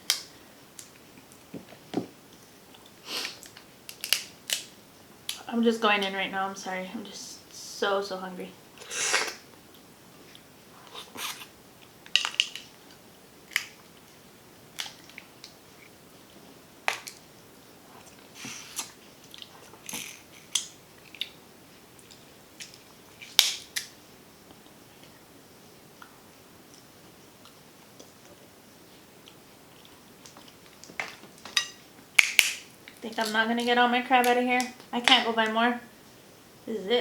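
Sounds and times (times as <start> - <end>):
shell cracking: 3.3 - 4.7, 12.1 - 12.7, 13.5 - 13.8, 32.2 - 33.0.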